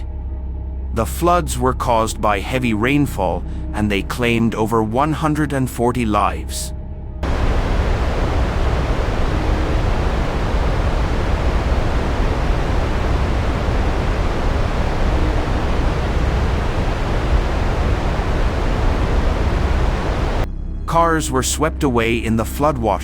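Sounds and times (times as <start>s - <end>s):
floodwater rushing: 7.2s - 20.5s.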